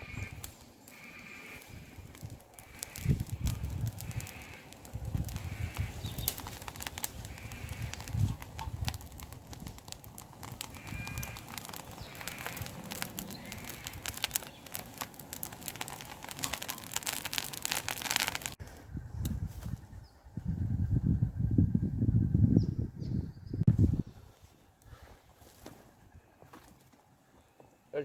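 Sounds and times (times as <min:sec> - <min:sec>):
campfire crackling and popping: 0:00.0 - 0:19.4.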